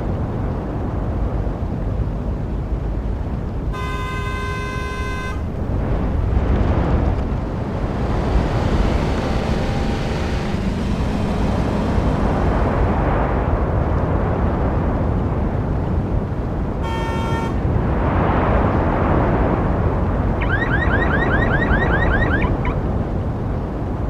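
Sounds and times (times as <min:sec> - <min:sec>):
traffic rumble: 0:00.0 - 0:24.0
car horn: 0:03.7 - 0:05.6, 0:16.8 - 0:17.6
vehicle passing: 0:04.8 - 0:14.5.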